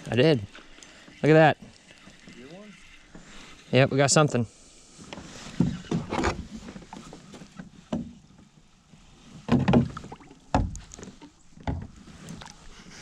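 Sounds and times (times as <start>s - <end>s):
knocks and bumps in a kayak: 5.0s - 13.0s.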